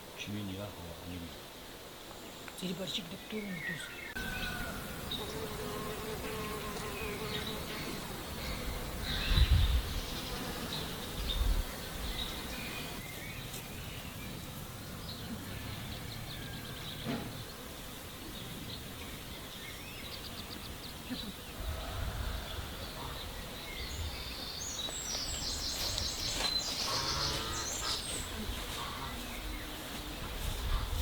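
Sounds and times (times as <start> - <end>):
insect buzzing: 4.1 - 13.7, 23.5 - 31.0.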